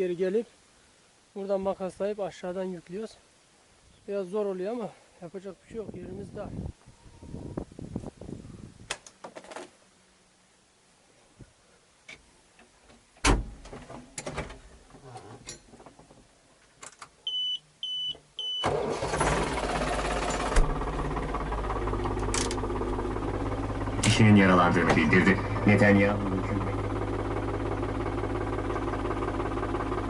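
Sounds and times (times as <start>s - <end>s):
short dashboard beeps: 17.3s - 18.8s
tractor diesel engine idling: 18.6s - 30.0s.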